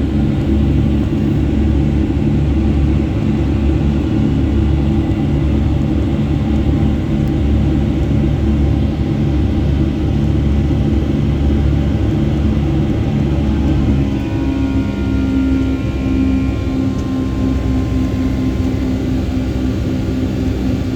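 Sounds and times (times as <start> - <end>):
jet engine drone in cabin: 0.0 - 20.9
low hums: 13.0 - 20.9.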